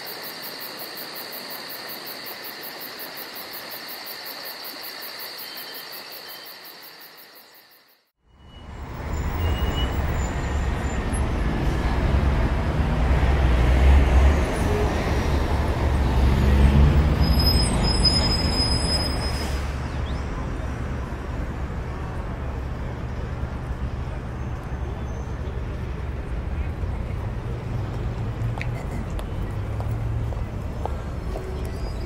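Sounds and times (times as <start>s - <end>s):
insects chirring: 0.0s - 8.1s.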